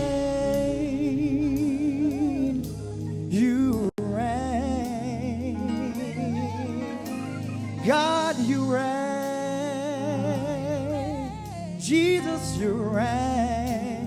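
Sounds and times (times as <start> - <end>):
drums: 0.0 - 4.2
bass guitar: 0.0 - 14.0
person singing with vibrato: 0.0 - 14.0.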